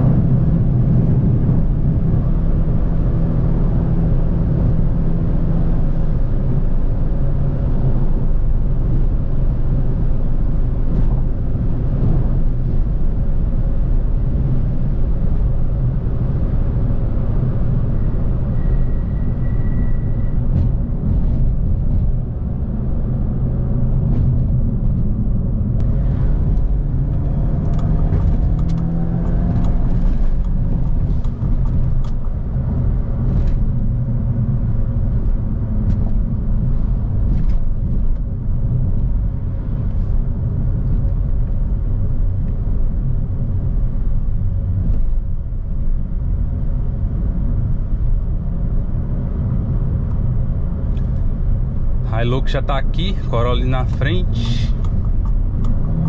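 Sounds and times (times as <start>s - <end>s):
car engine inside cabin: 0.0s - 56.0s.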